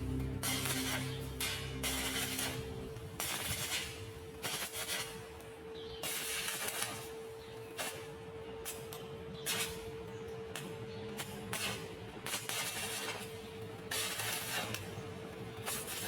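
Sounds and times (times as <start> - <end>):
soft background music: 0.0 - 3.7
arc welding hiss and crackle: 0.0 - 16.0.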